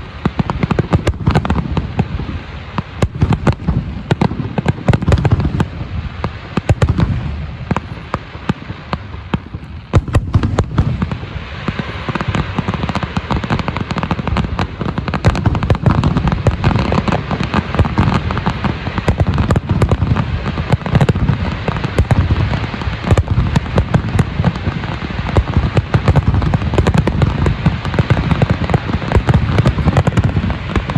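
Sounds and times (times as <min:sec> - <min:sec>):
fireworks crackling: 0:00.0 - 0:30.9
fireworks shell bursts booming: 0:14.2 - 0:30.9.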